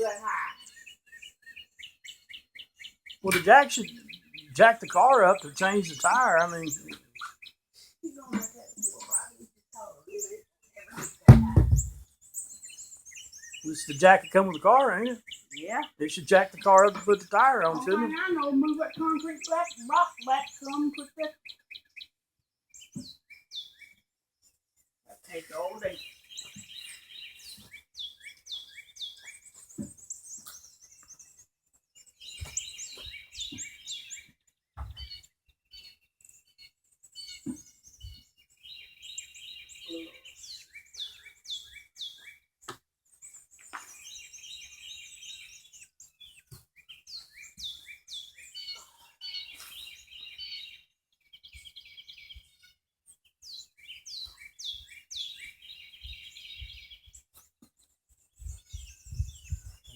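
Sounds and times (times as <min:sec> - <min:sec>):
songbird chirping: 0:00.0 - 0:59.9
faint knocks: 0:11.3 - 0:12.0.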